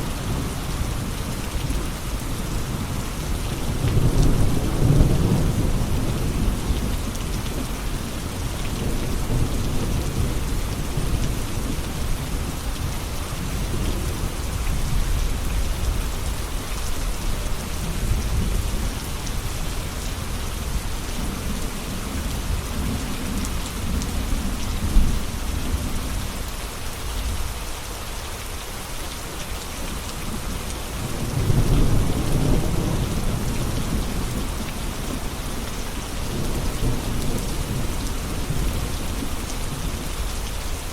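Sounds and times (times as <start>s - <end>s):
heavy rain falling: 0.0s - 40.9s
low rolling thunder: 1.7s - 16.4s, 31.0s - 40.1s.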